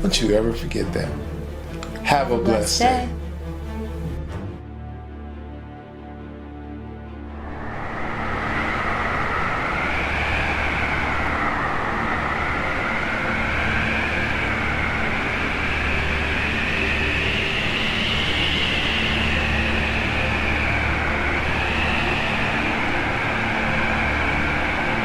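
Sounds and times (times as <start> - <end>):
low rumble: 6.8 - 25.0
wind gusting and howling: 7.0 - 25.0.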